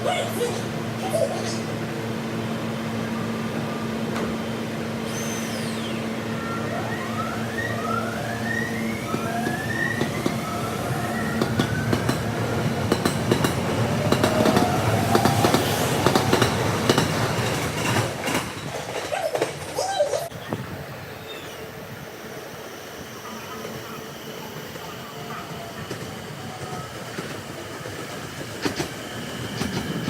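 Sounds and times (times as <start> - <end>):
train hum: 0.0 - 30.0
rising whines: 2.8 - 12.5
wheels clattering over rails: 11.4 - 20.3.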